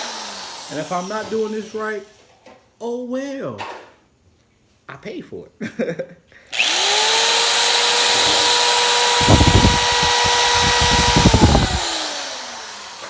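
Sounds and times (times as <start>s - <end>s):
power tool whining: 0.0s - 1.5s, 6.6s - 13.0s
tool cutting metal: 6.6s - 13.0s.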